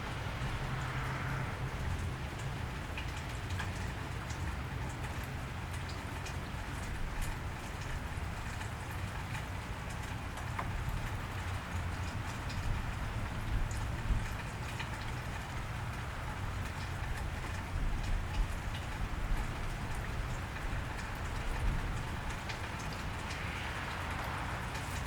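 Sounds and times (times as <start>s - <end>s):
low steady rumble: 0.0s - 3.5s
rain on a wet street: 0.0s - 25.0s.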